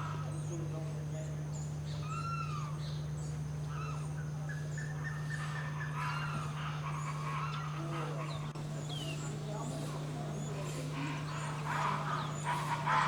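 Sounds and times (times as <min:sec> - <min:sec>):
steady low hum: 0:00.0 - 0:13.0
wild birds calling: 0:00.0 - 0:13.0.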